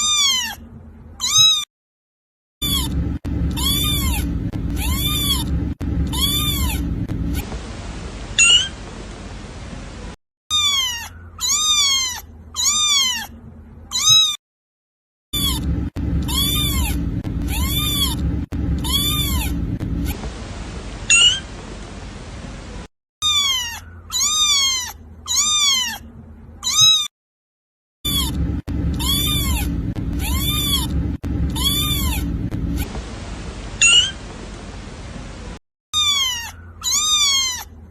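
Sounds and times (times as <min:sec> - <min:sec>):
kitten meowing: 0:00.0 - 0:00.6, 0:01.2 - 0:01.7, 0:02.6 - 0:07.4, 0:08.4 - 0:08.7, 0:10.5 - 0:13.3, 0:13.9 - 0:14.4, 0:15.4 - 0:20.2, 0:21.1 - 0:21.4, 0:23.2 - 0:26.0, 0:26.6 - 0:27.1, 0:28.1 - 0:32.9, 0:33.8 - 0:34.2, 0:36.0 - 0:37.8.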